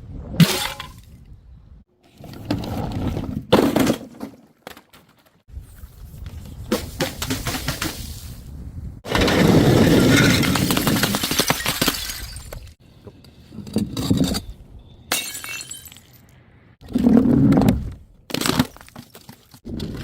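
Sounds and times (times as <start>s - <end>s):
glass bottles smashing: 9.7s - 12.8s, 15.1s - 16.2s.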